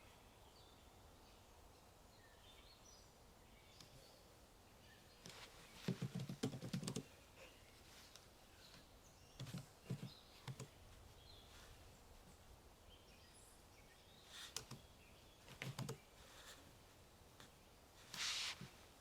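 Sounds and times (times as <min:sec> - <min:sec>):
faint bird chirps: 0:00.0 - 0:16.6
keyboard keystrokes: 0:15.5 - 0:16.0.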